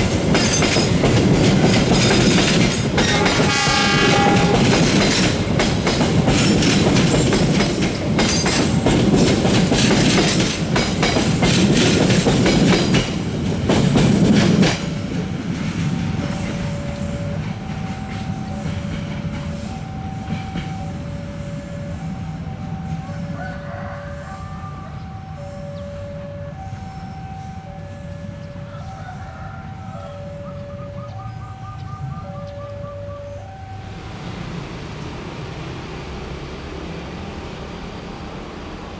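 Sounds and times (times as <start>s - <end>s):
train wheels clattering over rails: 0.0s - 21.7s
faint train rumble: 0.0s - 38.9s.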